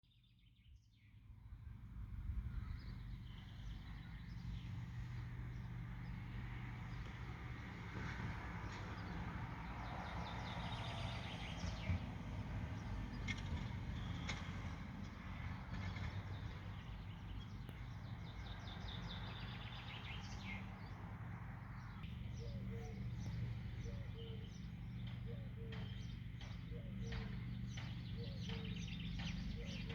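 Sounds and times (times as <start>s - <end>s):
birds chirping and calling: 21.8s - 29.9s.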